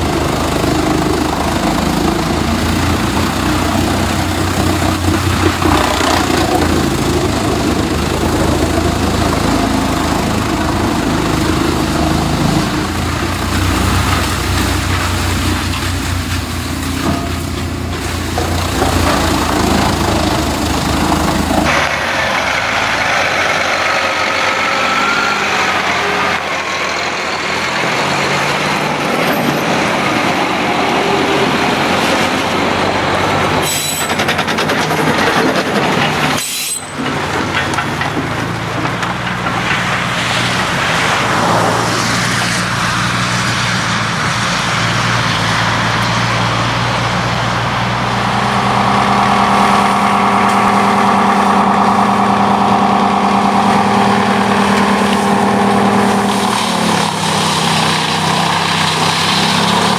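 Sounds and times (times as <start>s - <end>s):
heavy machine engine running: 0.0s - 59.9s
wavering high squeal: 36.4s - 37.0s.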